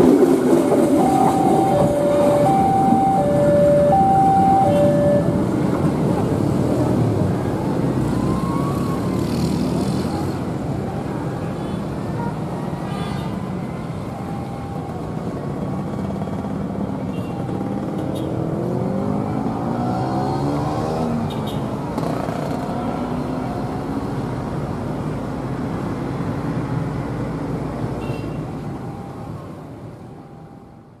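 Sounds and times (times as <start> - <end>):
diesel locomotive engine running: 0.0 - 6.4.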